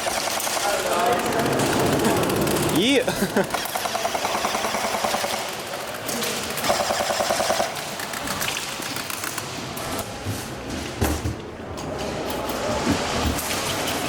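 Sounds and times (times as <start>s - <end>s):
airsoft guns firing bursts: 0.0s - 9.4s.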